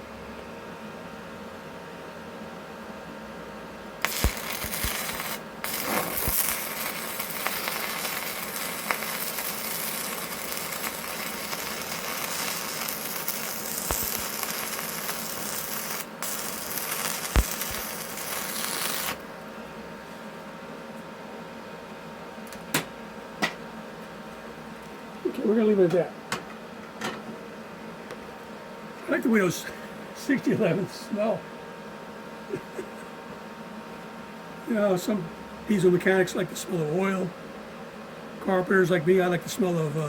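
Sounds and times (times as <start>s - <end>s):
welding arc crackling hiss: 4.0s - 19.3s, 38.8s - 40.0s.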